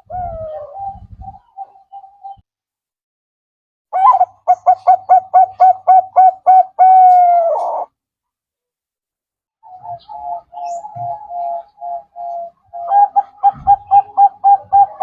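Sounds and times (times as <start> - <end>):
dove cooing: 0.0 - 2.4, 4.0 - 7.9, 9.6 - 15.0.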